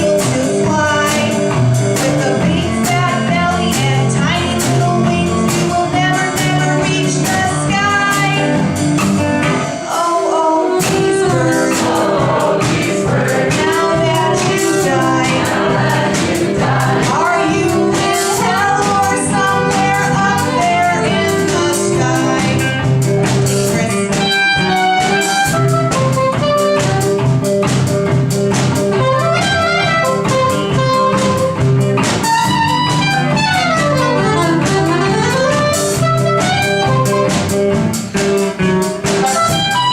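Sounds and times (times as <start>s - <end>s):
person singing: 0.0s - 8.6s, 9.6s - 26.8s
drums: 0.0s - 39.9s
guitar: 0.0s - 39.9s
saxophone: 23.8s - 27.7s, 28.9s - 37.7s, 39.0s - 39.9s.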